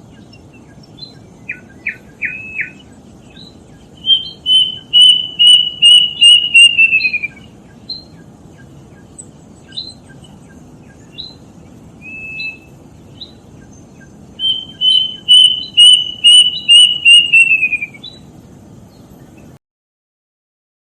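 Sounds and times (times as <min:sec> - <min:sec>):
cuckoo whistling song: 0:00.2 - 0:11.4, 0:12.0 - 0:18.3
short upslurred bird notes: 0:01.0 - 0:08.1, 0:12.0 - 0:18.2.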